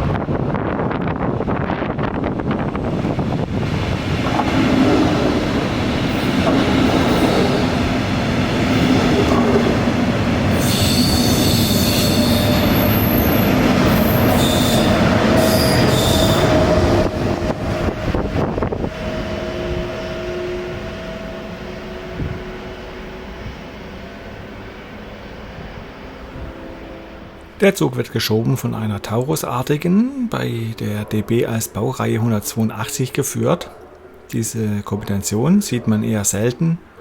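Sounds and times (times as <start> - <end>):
train running past: 0.0 - 37.0
train wheels squealing: 10.5 - 16.9.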